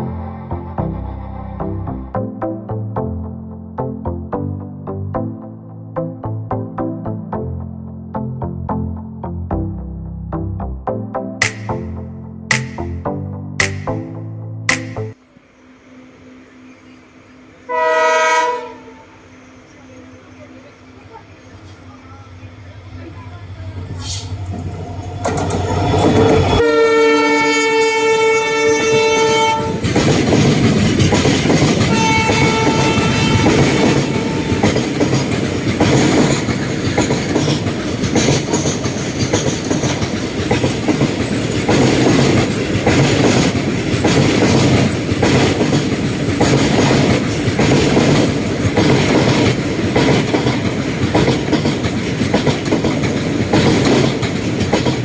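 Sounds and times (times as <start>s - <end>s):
train horn blasts: 17.6s - 19.4s, 26.5s - 29.9s, 31.8s - 35.0s
train wheels clickety-clack: 24.0s - 26.6s, 29.5s - 55.0s.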